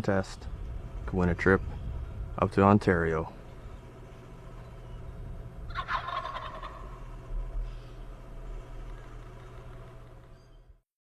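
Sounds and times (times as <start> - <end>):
steady low hum: 0.0 - 10.8
turkey gobbling: 5.7 - 7.1.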